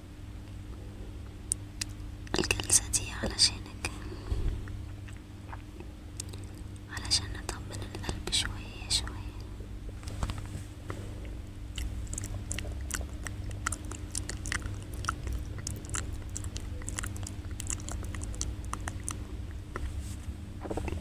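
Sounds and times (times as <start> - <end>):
steady low hum: 0.0 - 21.0
wet mouth clicks and smacks: 5.1 - 7.1, 11.7 - 19.2.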